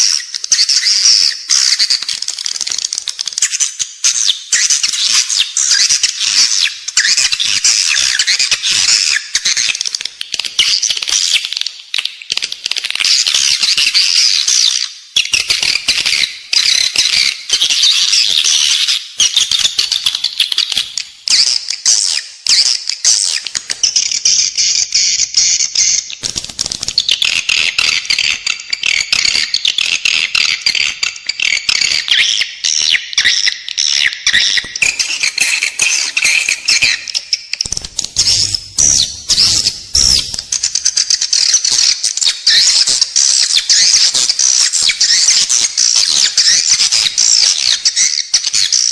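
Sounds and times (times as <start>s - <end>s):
swiftlets twittering and clicking: 26.2s - 47.6s.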